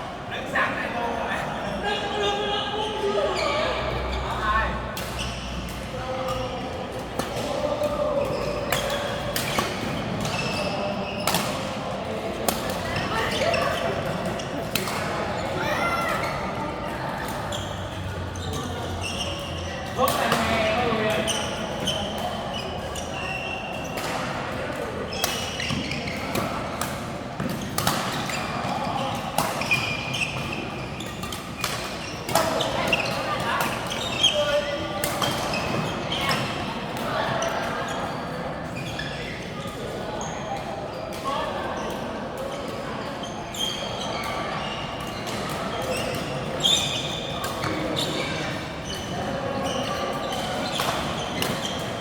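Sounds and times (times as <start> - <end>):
background murmur: 0.0 - 52.0
shoe squeaks: 10.0 - 11.4, 17.4 - 20.0, 20.6 - 24.3, 25.1 - 26.4, 28.2 - 36.5, 38.8 - 41.8, 42.6 - 52.0.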